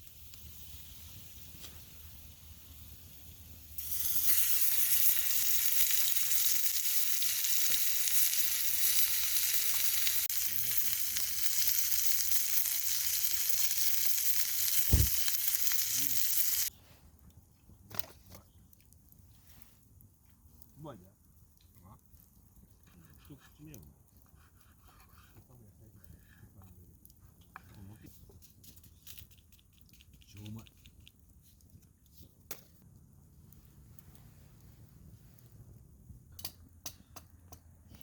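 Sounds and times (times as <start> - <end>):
food sizzling in a pan: 0.0 - 16.7
low thump: 14.9 - 15.2.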